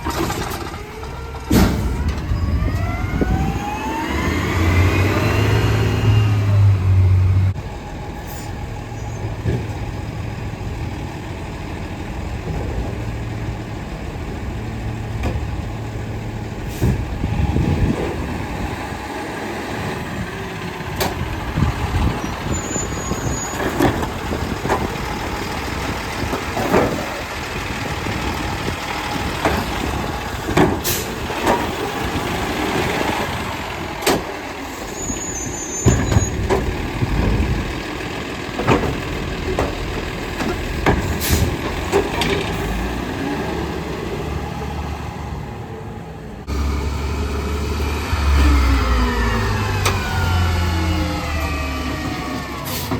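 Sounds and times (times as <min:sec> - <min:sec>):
garbage truck engine drone: 0:00.0 - 0:52.9
metal clanks and knocks: 0:26.1 - 0:27.3, 0:29.3 - 0:31.8, 0:38.5 - 0:42.6.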